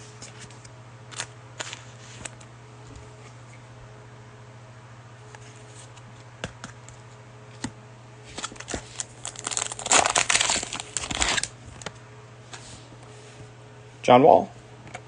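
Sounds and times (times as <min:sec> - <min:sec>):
cellophane wrapper crinkling: 0:08.4 - 0:11.9.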